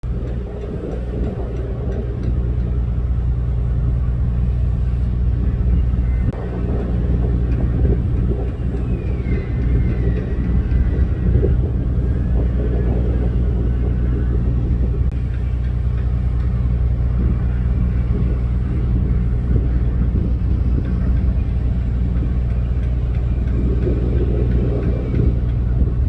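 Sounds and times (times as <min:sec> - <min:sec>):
ship machinery rumble: 0:00.0 - 0:26.0
faint high whistle: 0:08.8 - 0:11.2.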